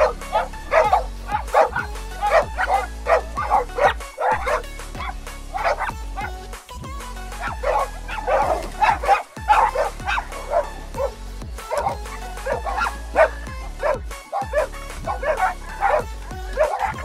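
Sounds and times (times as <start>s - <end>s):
dog barking rapidly: 0.0s - 6.3s, 7.4s - 17.0s
background music: 0.0s - 17.0s.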